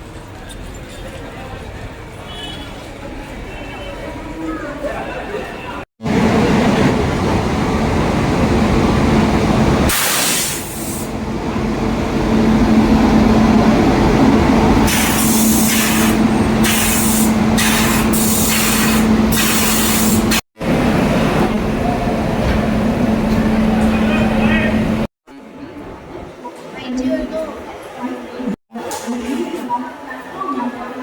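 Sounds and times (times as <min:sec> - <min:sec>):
train rumbling: 0:06.0 - 0:25.1
sharp air hisses: 0:09.9 - 0:11.1, 0:14.9 - 0:20.3.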